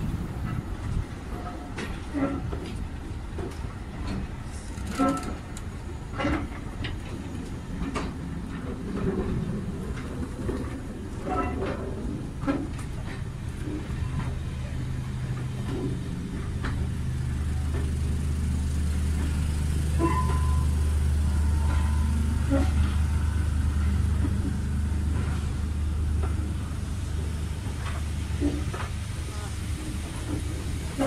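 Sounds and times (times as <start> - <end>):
diesel locomotive engine hum: 0.0 - 31.0.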